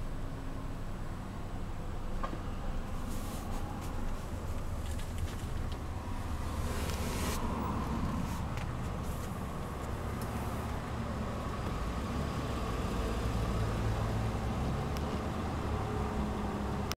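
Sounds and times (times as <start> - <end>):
car engine idling: 0.0 - 15.7.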